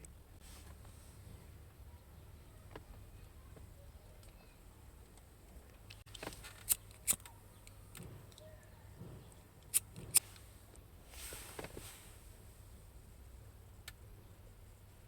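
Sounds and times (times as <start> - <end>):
sharp clicks of small parts: 5.0 - 8.5.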